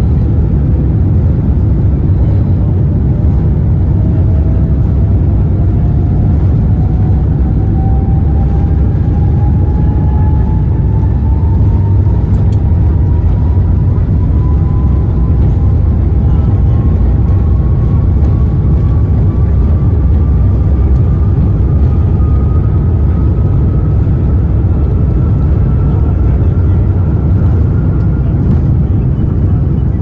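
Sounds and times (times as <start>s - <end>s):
jet engine whine rising: 0.0s - 30.0s
jet engines roaring: 0.0s - 30.0s.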